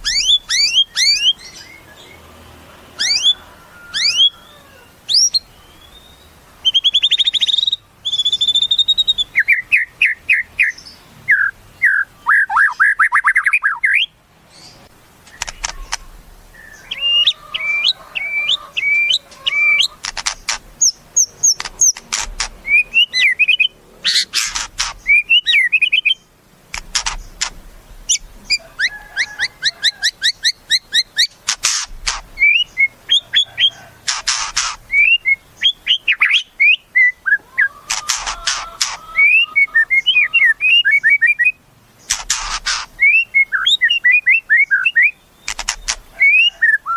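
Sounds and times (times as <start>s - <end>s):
bird singing whistles and trills: 0.0s - 1.8s, 3.0s - 14.2s, 16.6s - 19.9s, 22.6s - 24.3s, 24.9s - 26.2s, 32.4s - 33.8s, 34.9s - 41.6s, 42.7s - 46.9s.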